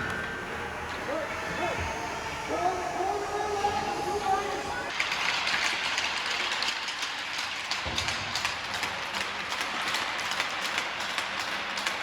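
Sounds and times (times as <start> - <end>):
skates and sticks clicking on ice: 2.5 - 12.0.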